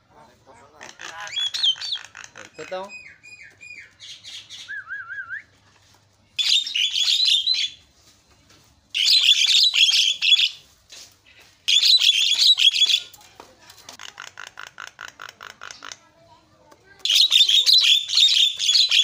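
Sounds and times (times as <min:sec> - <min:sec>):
bird chattering warbling song: 0:00.6 - 0:05.0, 0:06.4 - 0:07.8, 0:09.0 - 0:10.6, 0:11.7 - 0:13.1, 0:14.0 - 0:16.1, 0:17.0 - 0:19.0.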